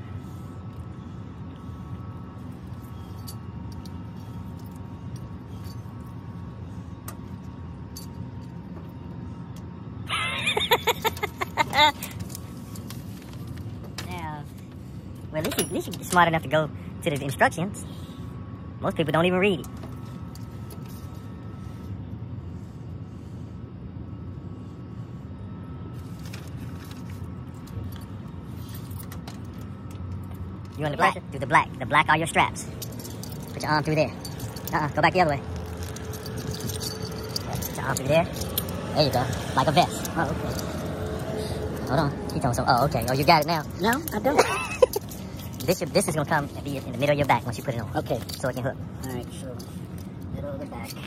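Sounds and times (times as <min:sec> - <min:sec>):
steady low rumble: 0:00.0 - 0:51.0
harness buckles clicking: 0:32.8 - 0:34.8, 0:35.4 - 0:46.2.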